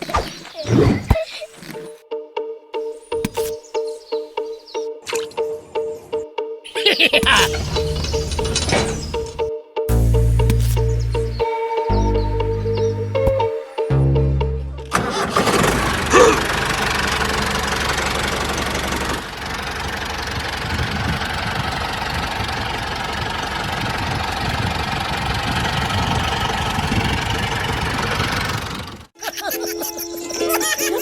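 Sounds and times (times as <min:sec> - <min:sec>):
engine chugging: 0:07.2 - 0:13.1, 0:14.8 - 0:29.1.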